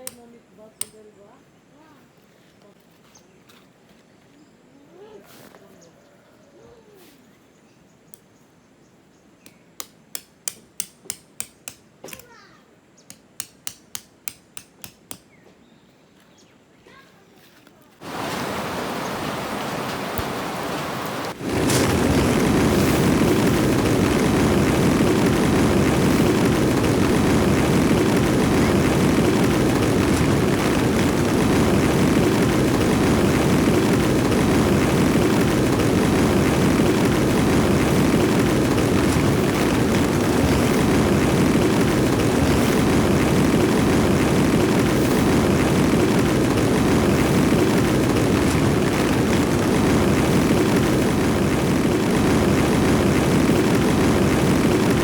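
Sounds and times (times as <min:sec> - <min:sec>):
sharp clicks: 0:00.0 - 0:01.0
heavy rain: 0:18.0 - 0:55.0.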